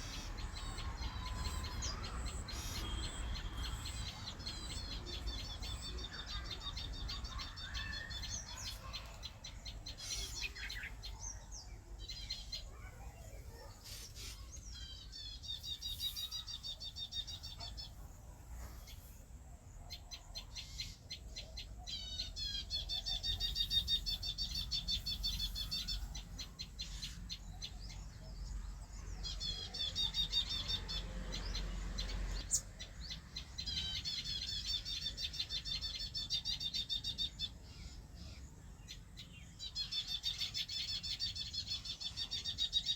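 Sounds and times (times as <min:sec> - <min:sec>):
birds singing chirping trills: 0:00.0 - 0:42.9.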